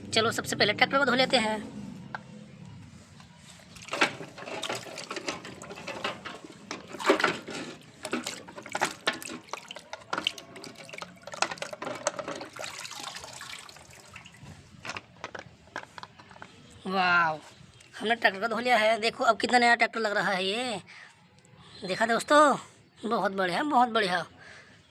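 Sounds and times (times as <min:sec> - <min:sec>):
water splashing and trickling: 0:03.4 - 0:15.2.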